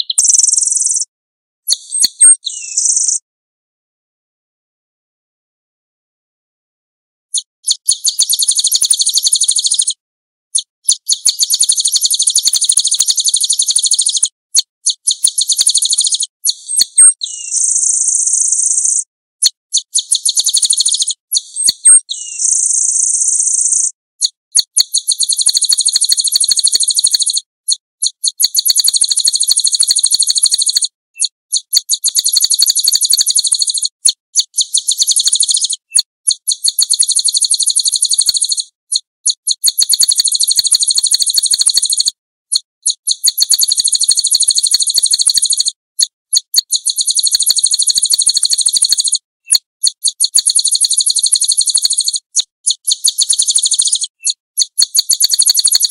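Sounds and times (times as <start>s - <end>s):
songbird singing high trills: 0.0s - 1.0s, 1.7s - 3.2s, 15.0s - 19.0s, 19.8s - 23.9s, 34.5s - 38.6s.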